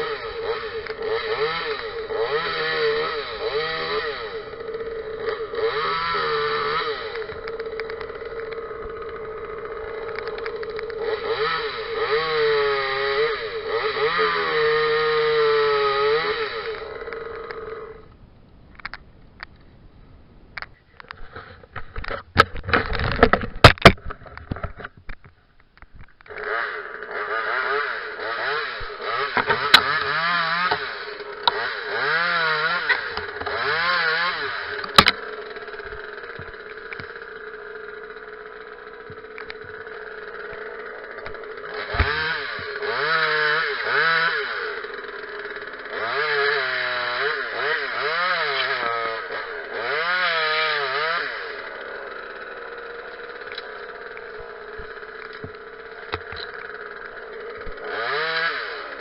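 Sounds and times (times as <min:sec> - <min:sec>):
chainsaw revving: 0:00.0 - 0:18.2, 0:26.2 - 0:59.0
clatter and sharp knocks: 0:21.7 - 0:25.3.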